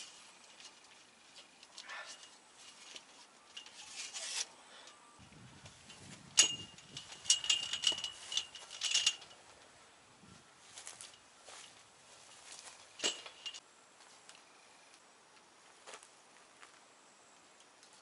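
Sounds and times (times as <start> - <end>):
faint thin ringing: 2.0 - 9.4, 11.0 - 13.6
sharp clicks and metallic clinks: 5.9 - 9.4, 12.4 - 13.6.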